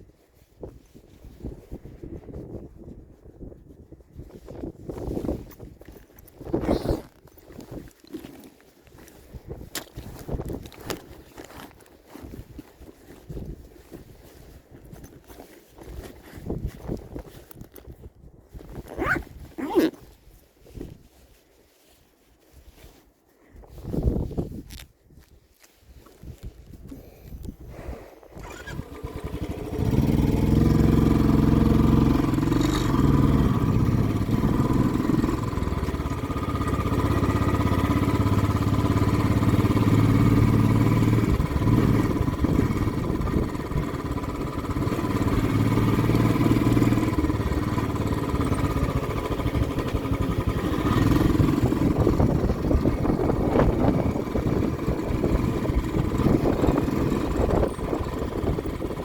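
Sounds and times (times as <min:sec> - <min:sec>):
motorcycle engine revving: 0:28.4 - 0:59.0.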